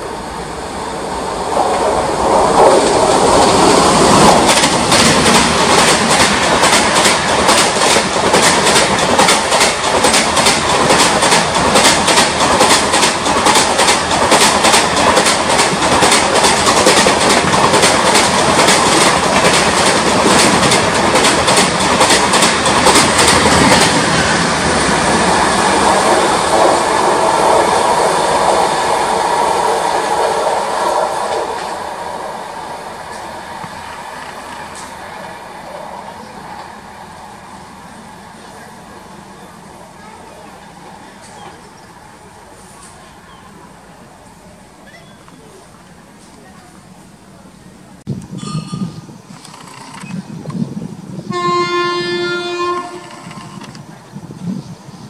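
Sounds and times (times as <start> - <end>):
train rushing past: 0.0 - 55.0
wheels clattering over rail joints: 1.6 - 27.6.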